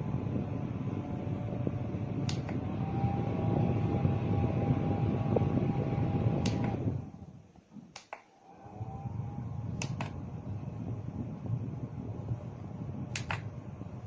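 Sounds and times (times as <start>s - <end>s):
faint motor whine: 0.0s - 7.4s, 8.4s - 14.0s
fan rushing air: 0.0s - 14.0s
sharp clicks: 7.9s - 8.3s, 13.1s - 13.5s.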